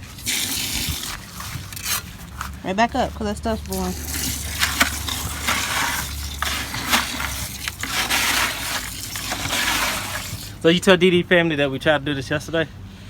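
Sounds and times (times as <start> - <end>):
dry concrete mix crunching: 0.0 - 11.0.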